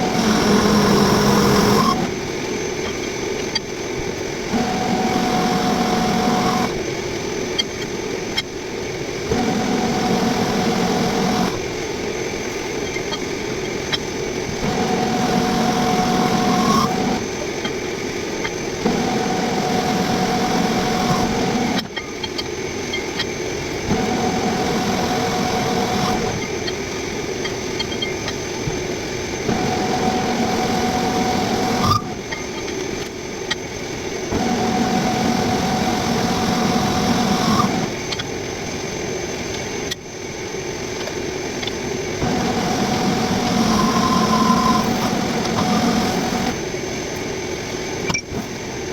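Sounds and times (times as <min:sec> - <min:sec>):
metal lathe cutting steel: 0:00.0 - 0:02.2, 0:09.3 - 0:11.7, 0:12.8 - 0:17.7, 0:18.4 - 0:28.5, 0:29.4 - 0:32.8, 0:34.3 - 0:38.2, 0:42.2 - 0:46.7
steady whine: 0:00.0 - 0:48.9.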